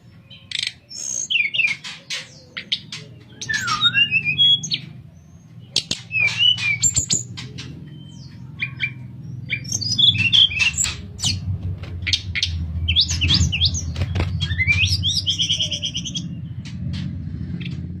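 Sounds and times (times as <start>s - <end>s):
steady low hum: 2.2s - 18.0s
bird singing whistled notes: 3.3s - 4.9s, 8.0s - 11.4s, 12.1s - 16.6s.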